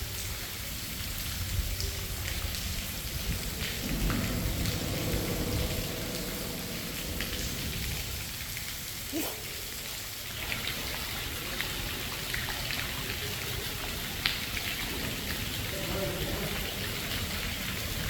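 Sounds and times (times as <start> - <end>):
steady rain: 0.0 - 18.0
sharp raindrop ticks: 1.0 - 9.0, 10.3 - 18.0
low rumbling wind: 1.1 - 9.7.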